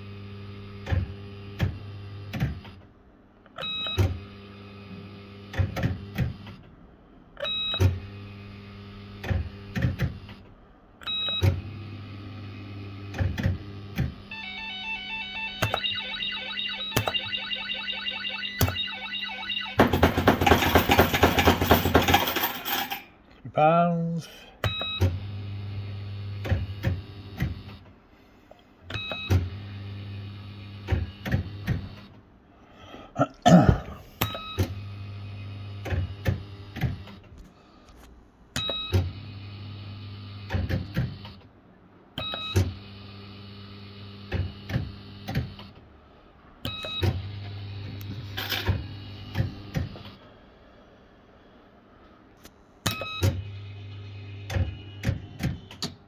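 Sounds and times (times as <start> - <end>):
short electronic tone: 14.3 - 19.9
slot machine reels humming: 14.3 - 23.1.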